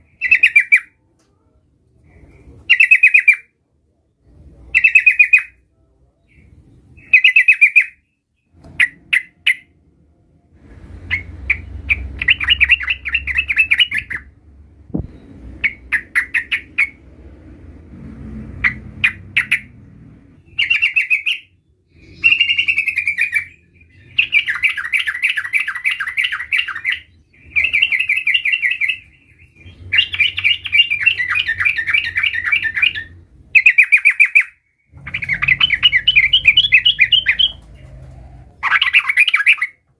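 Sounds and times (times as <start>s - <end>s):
bird chattering song: 0.0s - 1.0s, 2.1s - 3.5s, 4.7s - 5.6s, 6.2s - 9.8s, 11.1s - 17.0s, 18.6s - 39.8s
low rumble: 9.8s - 20.5s.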